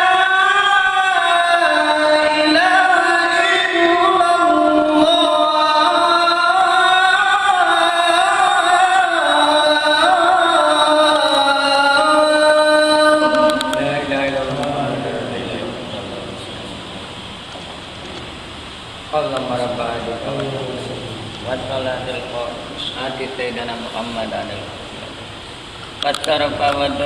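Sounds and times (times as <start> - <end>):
man singing call to prayer: 0.0 - 17.1.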